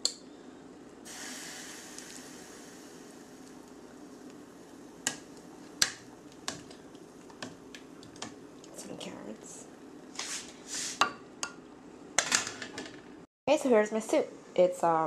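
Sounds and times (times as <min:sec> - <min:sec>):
soft hiss: 0:01.0 - 0:08.7.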